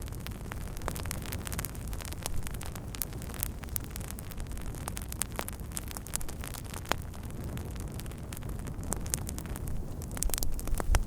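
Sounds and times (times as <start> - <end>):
campfire crackling and popping: 0.0 - 11.0
steady low rumble: 7.2 - 11.0.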